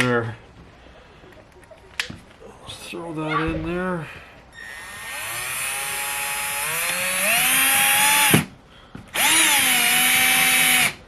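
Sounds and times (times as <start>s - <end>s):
power drill driving a screw: 4.6s - 8.5s, 9.1s - 11.0s.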